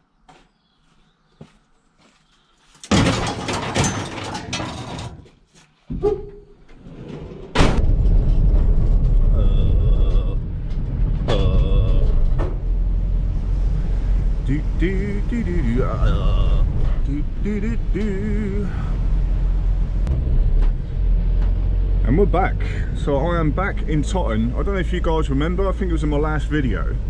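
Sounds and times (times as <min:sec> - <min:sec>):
low engine rumble: 0:06.9 - 0:27.0.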